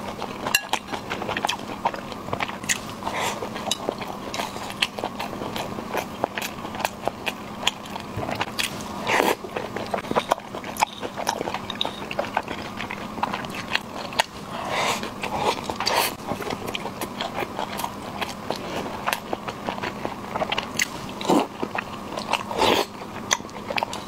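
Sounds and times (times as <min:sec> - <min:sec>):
wet chewing and biting: 0:00.0 - 0:24.0.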